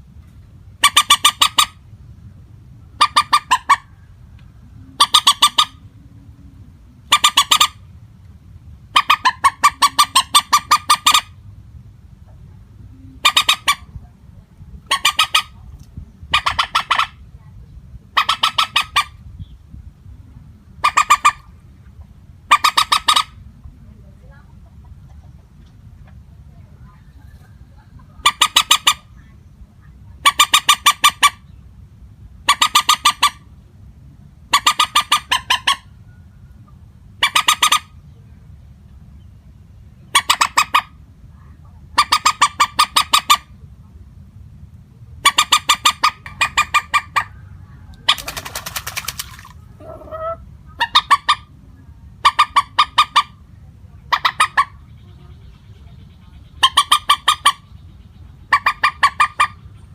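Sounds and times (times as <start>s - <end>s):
moorhen stuttering clicking calls: 0.8s - 1.8s, 3.0s - 3.8s, 5.0s - 5.8s, 7.1s - 7.8s, 8.9s - 11.3s, 13.2s - 13.9s, 14.8s - 15.6s, 18.1s - 19.2s, 22.5s - 23.4s, 28.2s - 29.1s, 30.2s - 31.4s, 32.4s - 33.4s, 34.5s - 35.9s, 37.2s - 37.9s, 40.1s - 40.9s, 42.0s - 43.5s, 45.2s - 51.5s, 55.8s - 57.7s, 58.4s - 59.7s.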